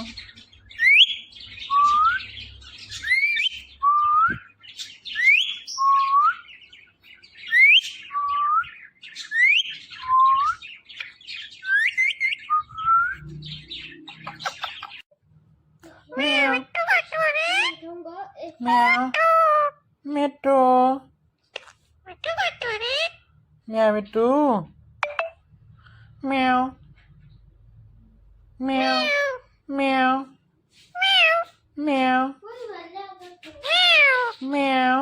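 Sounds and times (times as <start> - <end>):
parrot chirps and clicks: 14.1 - 15.0, 21.5 - 23.2, 25.0 - 25.4.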